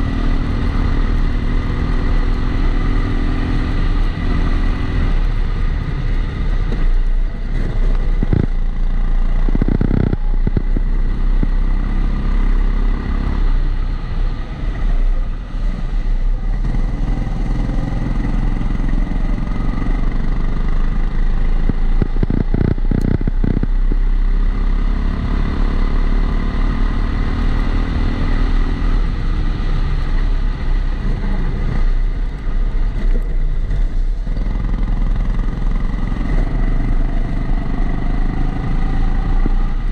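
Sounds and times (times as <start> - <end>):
kart engine revving: 34.5 - 39.8.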